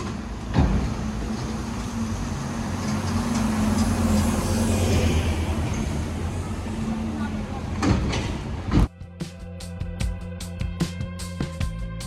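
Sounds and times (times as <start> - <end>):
vehicle engine hum passing: 0.0 - 8.9.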